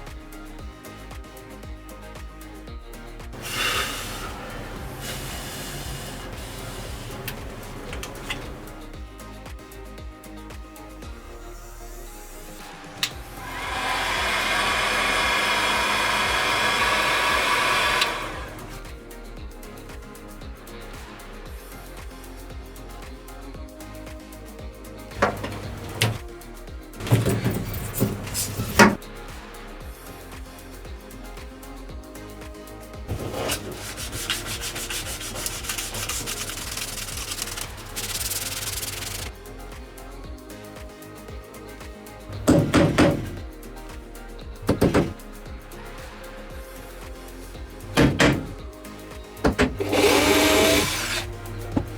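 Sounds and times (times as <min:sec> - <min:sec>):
power tool whining: 0:03.4 - 0:08.8, 0:13.0 - 0:18.9, 0:49.5 - 0:51.9
sanding rasp: 0:03.4 - 0:08.8, 0:13.1 - 0:18.9, 0:33.1 - 0:39.3, 0:49.4 - 0:51.9.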